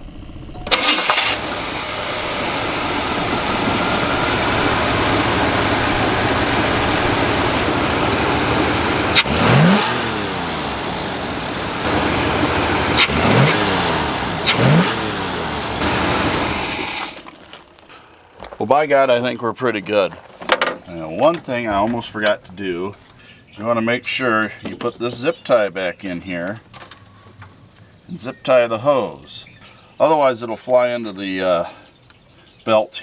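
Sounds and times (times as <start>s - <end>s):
car engine running and revving: 0.0s - 17.2s.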